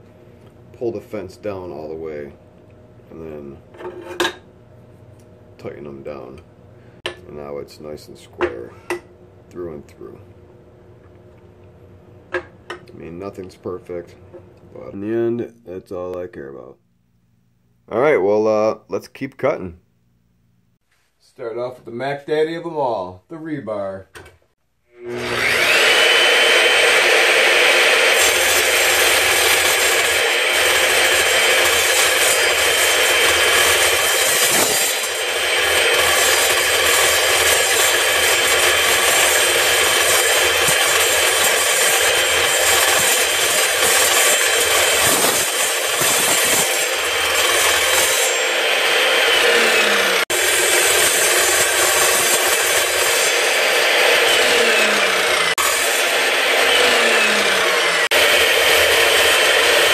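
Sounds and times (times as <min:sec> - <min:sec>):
saw motor whining: 0:24.9 - 0:59.9
saw blade cutting metal rebar: 0:25.0 - 0:59.9.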